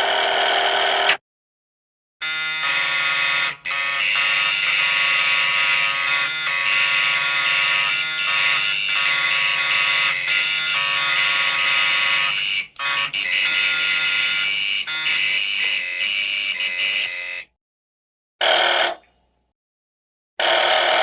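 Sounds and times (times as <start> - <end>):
electric alarm buzzer: 0.0 - 1.2, 2.2 - 17.6, 18.4 - 19.0, 20.4 - 21.0.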